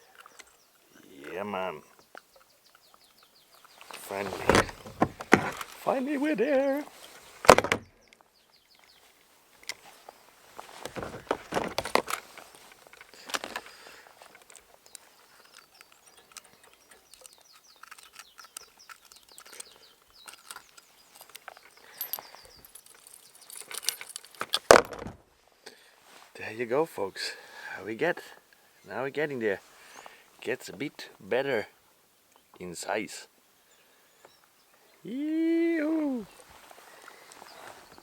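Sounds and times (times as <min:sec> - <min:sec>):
faint bird chirping: 0:00.0 - 0:10.8, 0:12.5 - 0:24.4, 0:28.3 - 0:38.0
knocks and light clinking: 0:01.2 - 0:05.8, 0:10.7 - 0:25.2.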